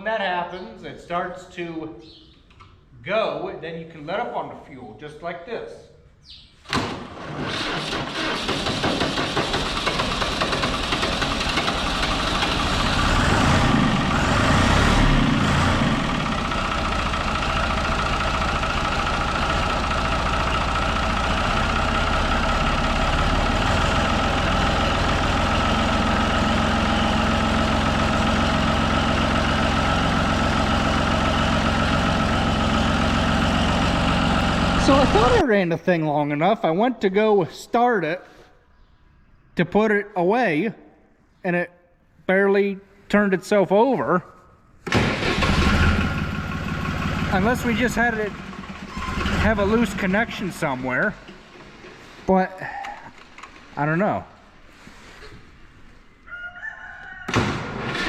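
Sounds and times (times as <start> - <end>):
tractor engine starting and running: 6.7 - 35.6, 44.8 - 55.9, 57.3 - 58.0.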